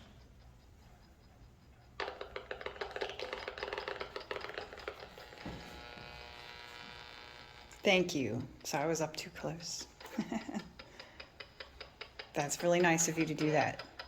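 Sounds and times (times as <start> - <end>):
electronic device rapid clicks: 0.0 - 5.4, 6.5 - 14.0
electronic buzzing tone: 4.5 - 7.8.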